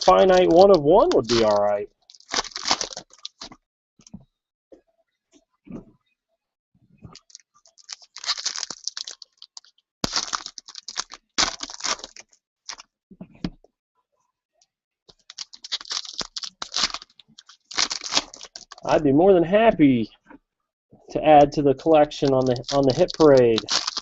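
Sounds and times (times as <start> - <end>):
packaging crinkling and tearing: 0.0 - 3.6, 7.1 - 12.8, 15.1 - 18.9, 22.2 - 24.0.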